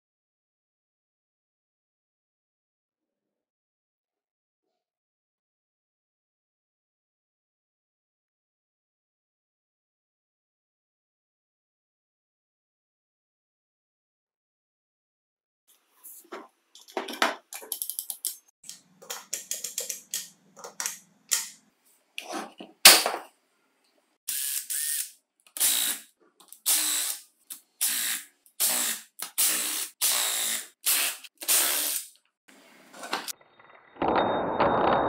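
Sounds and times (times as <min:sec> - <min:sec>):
small parts clicking and rattling: 0:16.8 - 0:21.6.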